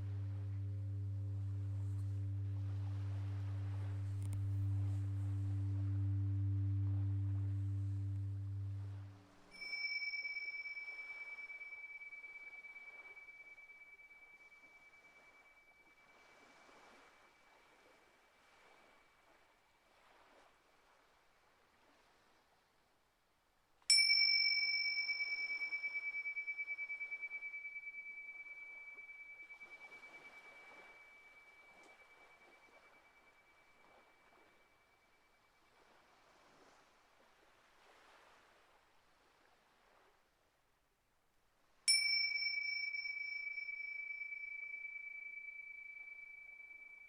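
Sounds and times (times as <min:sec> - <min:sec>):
singing bowl ringing: 0:00.0 - 0:17.3, 0:23.9 - 0:35.5, 0:41.9 - 0:47.0.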